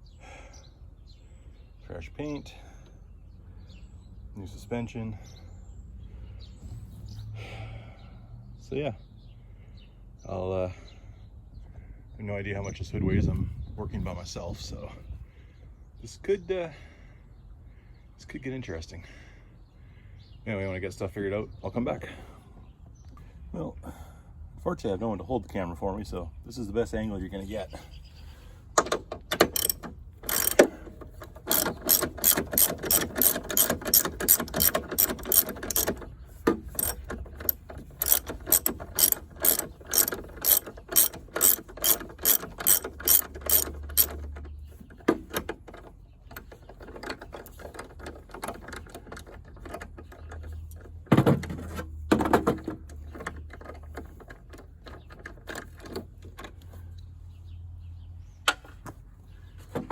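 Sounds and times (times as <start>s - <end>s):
ratchet wrench clicking: 29.3s - 36.0s, 36.6s - 44.4s.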